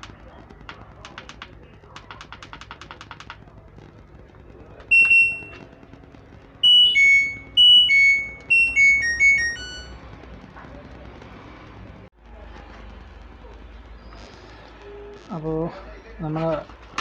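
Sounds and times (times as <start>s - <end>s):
quick evenly spaced clicks: 0.0s - 15.4s
washing machine beeping: 4.9s - 5.6s, 6.6s - 10.0s.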